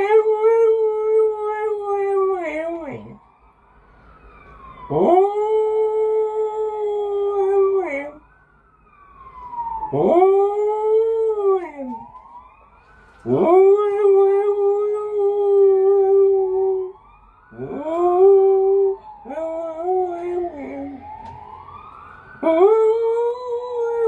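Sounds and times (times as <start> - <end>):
dog howling: 0.0 - 3.2, 4.9 - 8.2, 9.9 - 12.1, 13.2 - 21.3, 22.4 - 24.0
siren wailing: 0.0 - 24.0.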